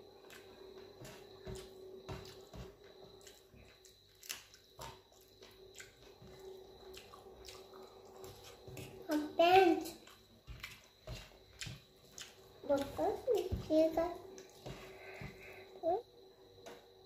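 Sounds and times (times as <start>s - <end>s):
wet chewing and mouth smacks: 3.1s - 9.1s, 9.8s - 13.5s, 14.3s - 15.1s.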